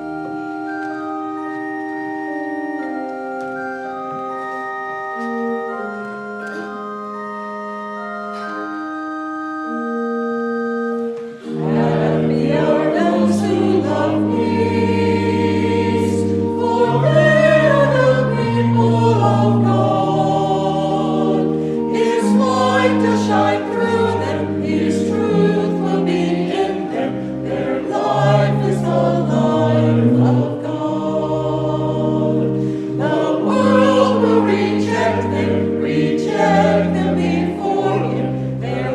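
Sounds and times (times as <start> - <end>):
organ playing chords: 0.0 - 38.9
choir singing: 11.4 - 38.9.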